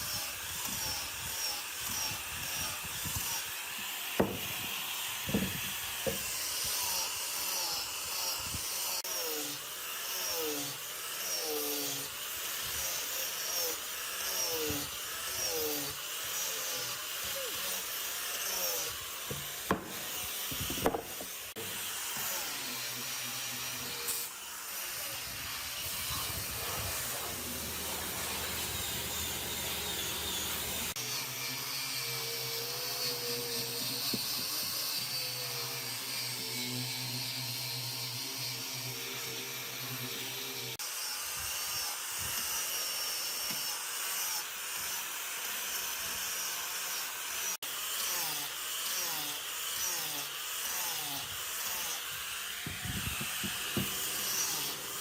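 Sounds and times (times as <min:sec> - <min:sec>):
tool rubbing over wood: 0:00.0 - 0:31.0, 0:49.8 - 0:55.0
sharp knocks: 0:04.2 - 0:04.5, 0:19.3 - 0:20.1, 0:52.7 - 0:54.1.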